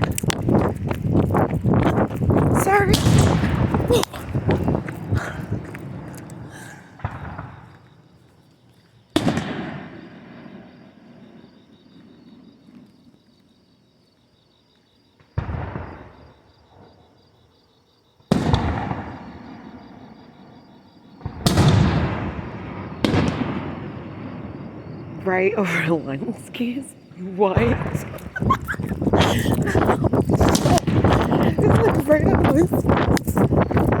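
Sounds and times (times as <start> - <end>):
rumbling echo: 0.0 - 7.7
fireworks bangs: 0.0 - 8.2, 9.1 - 13.1, 15.2 - 17.0, 18.3 - 20.6, 21.2 - 34.0.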